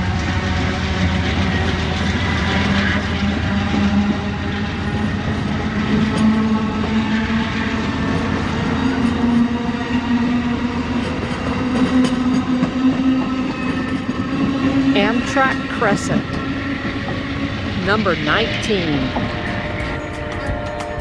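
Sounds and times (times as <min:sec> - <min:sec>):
diesel train engine drone: 0:00.0 - 0:21.0
train wheel clicks: 0:19.1 - 0:21.0.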